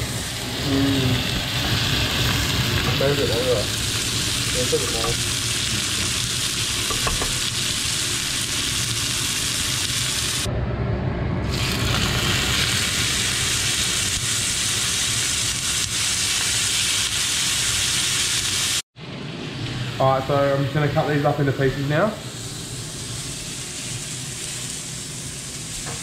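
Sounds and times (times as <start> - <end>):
fish sizzling in a frying pan: 0.6 - 10.5, 11.5 - 18.8.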